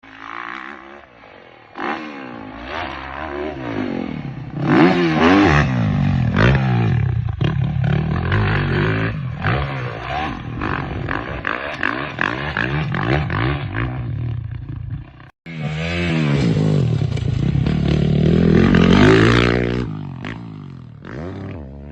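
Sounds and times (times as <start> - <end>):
motocross bike engine revving: 0.0 - 21.9.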